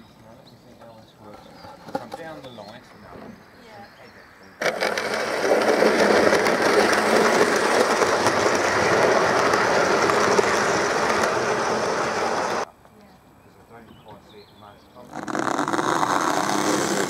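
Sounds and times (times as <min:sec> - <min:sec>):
train rumbling on track: 0:04.6 - 0:12.7
wheels clicking over rail joints: 0:04.6 - 0:12.7.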